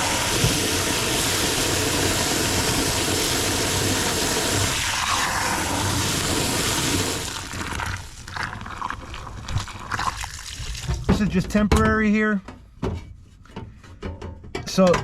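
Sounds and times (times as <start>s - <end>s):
garden hose spraying water: 0.0s - 11.3s.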